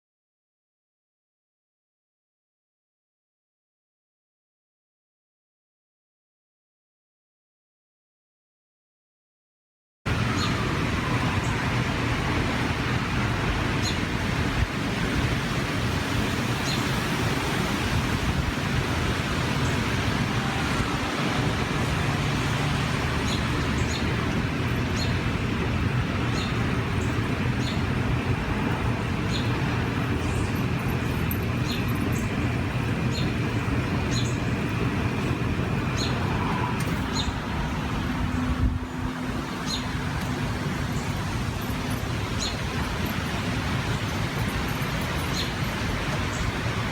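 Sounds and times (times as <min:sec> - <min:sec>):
train rumbling past: 0:10.1 - 0:46.9
wind rushing through trees: 0:10.1 - 0:46.9
bird chirping: 0:29.3 - 0:36.2.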